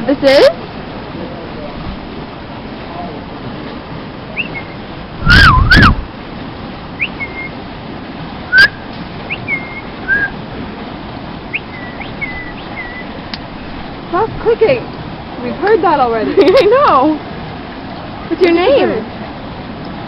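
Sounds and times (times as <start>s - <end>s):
parrot whistling: 4.4s - 6.0s, 7.0s - 7.6s, 8.5s - 10.4s, 11.5s - 13.1s
parrot chirping: 7.0s - 7.5s, 11.5s - 13.1s.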